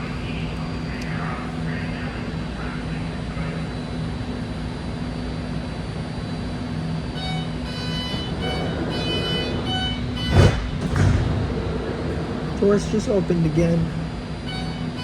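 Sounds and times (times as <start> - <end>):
train car hum: 0.0 - 15.0
door warning beeps: 7.1 - 12.6
sliding doors thudding shut: 7.4 - 14.4.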